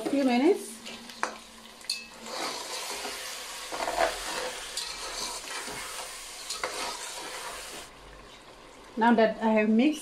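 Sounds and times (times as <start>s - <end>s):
chicken sizzling in a pot: 0.0s - 7.9s
spatula scraping a pot: 2.2s - 7.9s.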